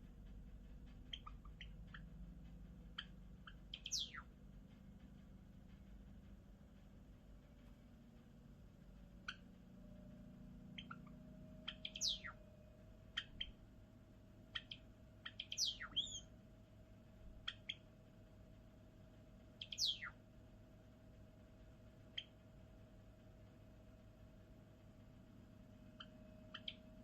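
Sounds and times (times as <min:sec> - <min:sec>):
sparrow chip notes: 0:02.9 - 0:04.3, 0:10.8 - 0:12.4, 0:14.6 - 0:16.3
bird notes sweeping downward: 0:10.8 - 0:12.4, 0:15.3 - 0:16.3.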